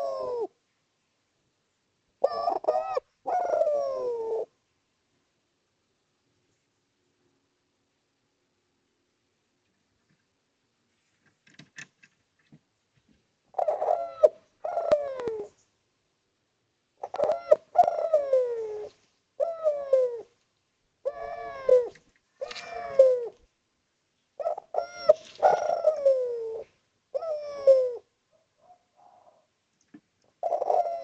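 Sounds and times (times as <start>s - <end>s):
dove cooing: 0.0s - 0.6s, 2.2s - 4.6s, 13.5s - 15.6s, 17.0s - 20.4s, 21.0s - 23.5s, 24.4s - 29.5s, 30.4s - 31.0s.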